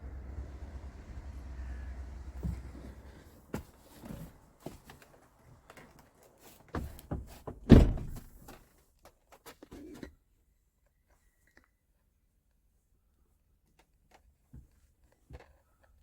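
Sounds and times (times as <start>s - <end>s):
knocks and clunks: 1.4s - 4.4s, 6.8s - 8.5s
deep thunk: 7.6s - 8.4s.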